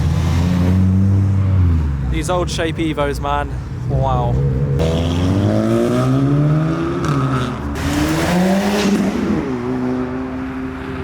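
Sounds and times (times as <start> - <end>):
car engine accelerating: 4.4 - 10.8.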